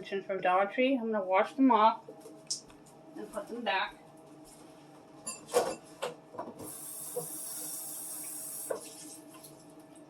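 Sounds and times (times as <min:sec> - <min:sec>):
kitchen tap running: 0:06.6 - 0:09.5.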